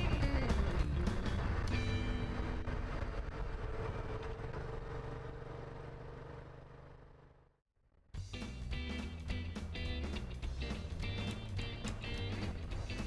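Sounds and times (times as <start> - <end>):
music: 0.0 - 2.6, 8.1 - 13.0
motorcycle engine running: 0.0 - 7.6.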